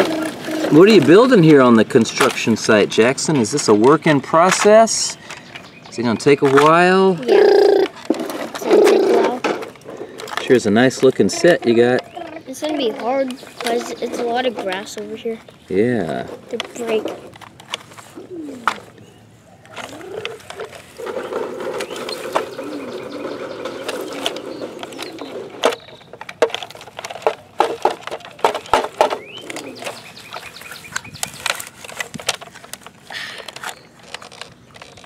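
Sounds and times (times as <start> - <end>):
toy parts clicking and knocking: 7.5 - 15.5, 16.1 - 18.0, 19.7 - 35.0.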